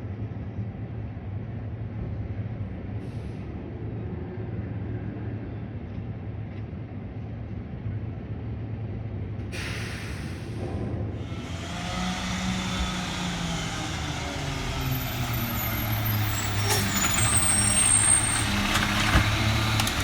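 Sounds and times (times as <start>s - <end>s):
diesel engine rumbling: 9.5s - 20.0s
air release hiss: 9.6s - 10.6s.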